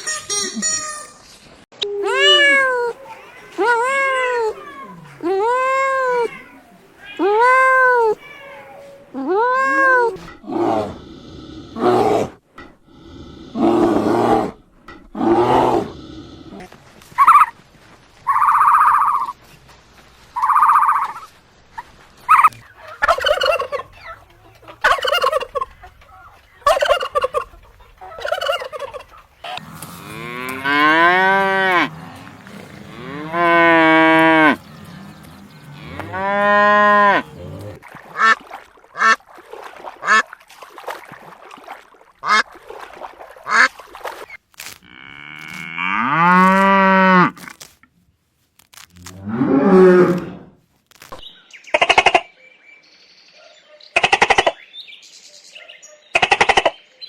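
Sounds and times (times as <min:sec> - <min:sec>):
farm birds calling: 0:22.3 - 0:38.4
cattle mooing: 0:28.8 - 0:37.8.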